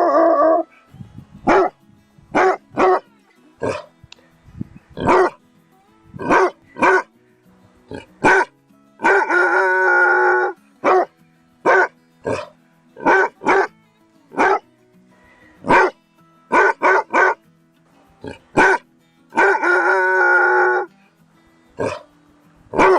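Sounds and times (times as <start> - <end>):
dog baying: 0.0 - 0.8, 1.5 - 1.7, 2.4 - 3.0, 3.6 - 3.9, 5.0 - 5.4, 6.2 - 7.1, 7.9 - 11.1, 11.7 - 13.7, 14.4 - 14.6, 15.6 - 15.9, 16.5 - 17.4, 18.3 - 18.8, 19.4 - 20.9, 21.8 - 22.1
dog barking: 1.4 - 3.0, 3.6 - 3.9, 5.0 - 5.4, 6.2 - 7.1, 7.9 - 13.7, 14.3 - 14.6, 15.6 - 17.4, 18.6 - 18.8, 19.4 - 20.9, 21.8 - 22.1.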